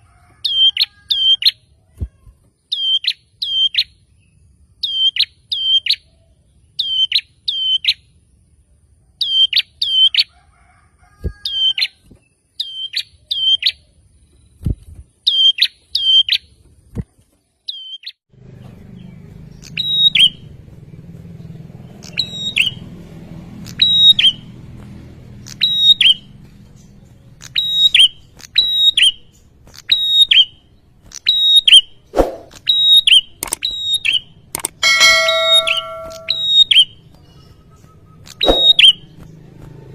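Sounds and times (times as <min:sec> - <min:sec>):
low steady hum: 0:34.8 - 0:36.6
bird singing high notes: 0:34.8 - 0:36.9, 0:38.4 - 0:39.0.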